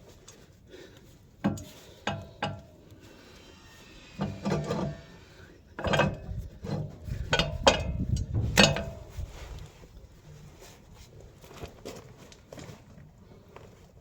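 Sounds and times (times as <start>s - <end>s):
metal scraping: 1.5s - 9.6s
metal clinks and knocks: 5.8s - 9.1s.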